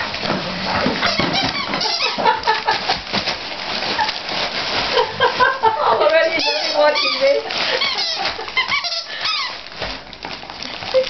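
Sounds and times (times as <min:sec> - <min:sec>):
wrapping paper tearing: 0:00.0 - 0:11.0
dog squeaking: 0:01.0 - 0:02.4, 0:06.3 - 0:09.7.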